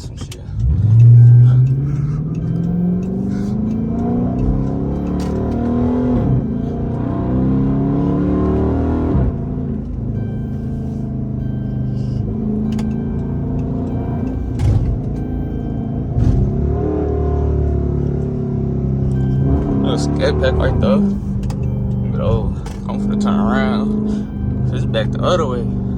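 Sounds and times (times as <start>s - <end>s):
car engine accelerating: 0.0s - 25.9s.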